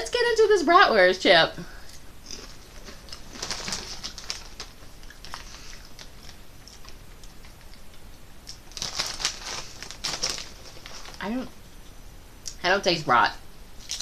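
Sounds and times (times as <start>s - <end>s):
potato chip crunching: 2.3s - 11.4s, 13.8s - 14.0s.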